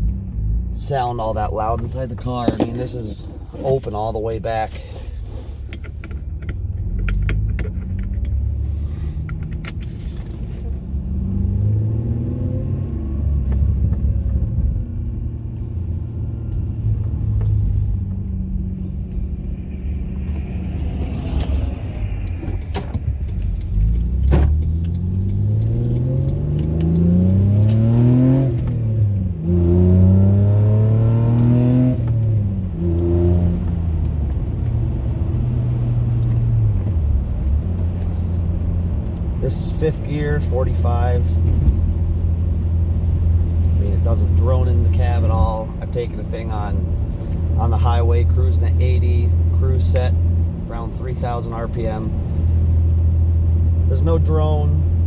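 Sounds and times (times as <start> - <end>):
car engine accelerating through gears: 5.2 - 47.7.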